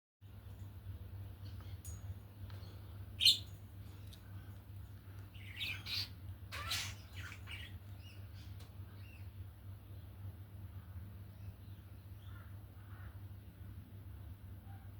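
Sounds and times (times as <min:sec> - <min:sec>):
steady low hum: 0:00.2 - 0:14.9
birds chirping and squawking: 0:02.5 - 0:09.5.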